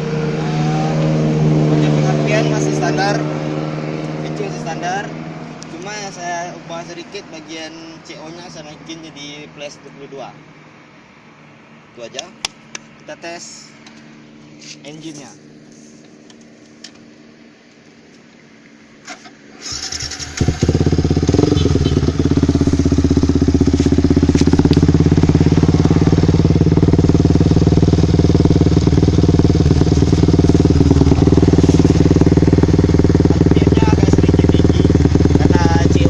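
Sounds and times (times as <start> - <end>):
motorcycle engine starting and idling: 19.0 - 36.0.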